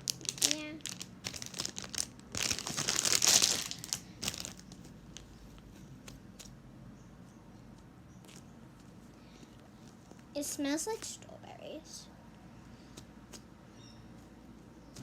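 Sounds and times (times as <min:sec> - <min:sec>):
packaging crinkling and tearing: 0:00.0 - 0:05.3.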